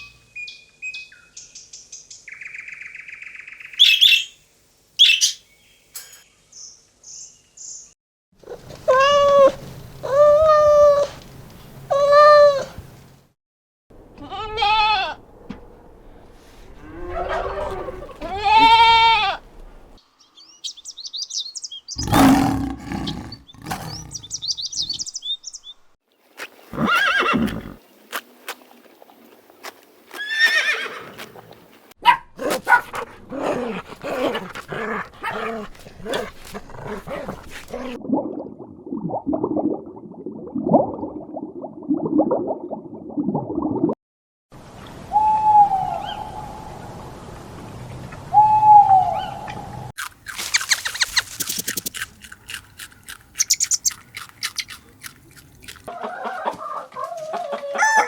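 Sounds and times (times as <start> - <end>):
high chirping animal calls: 3.7 - 4.4, 20.6 - 25.7, 50.4 - 54.9
low repeated grunts: 22.0 - 24.4, 32.4 - 38.0
short hoots: 22.0 - 24.4
harsh animal calls: 22.0 - 25.0.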